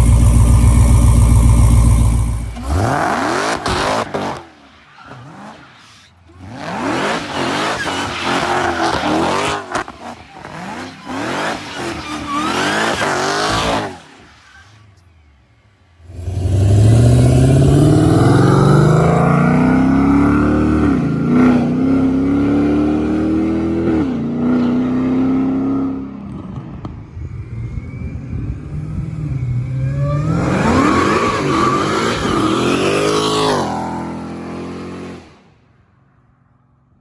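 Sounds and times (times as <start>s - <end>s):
car engine accelerating hard: 0.0s - 4.4s, 16.0s - 26.6s.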